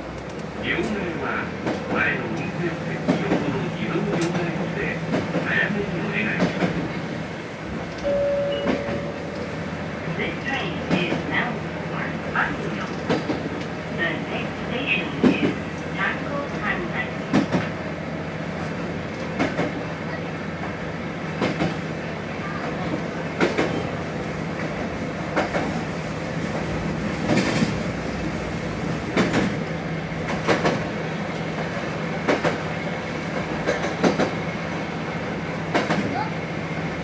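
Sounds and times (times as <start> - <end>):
diesel railcar engine drone: 0.0 - 37.0.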